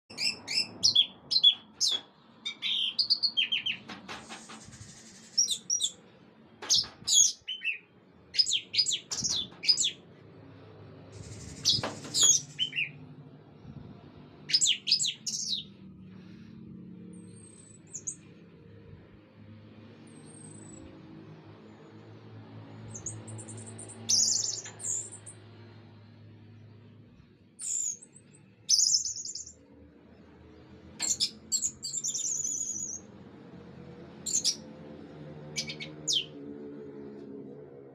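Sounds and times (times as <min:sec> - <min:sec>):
brief hissing noises: 0:04.2 - 0:05.4.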